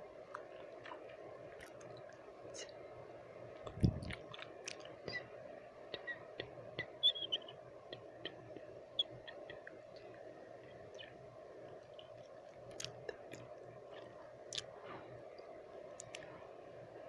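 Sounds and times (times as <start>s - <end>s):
soft steady noise: 0.0s - 17.0s
wet mouth clicks and smacks: 3.6s - 5.0s, 12.0s - 14.7s, 16.0s - 16.3s.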